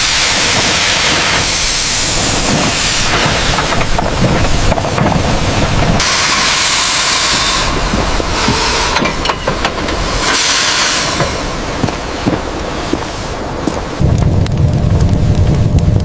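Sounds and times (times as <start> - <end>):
steam hissing under pressure: 0.0 - 13.3
low rumble: 11.0 - 16.0.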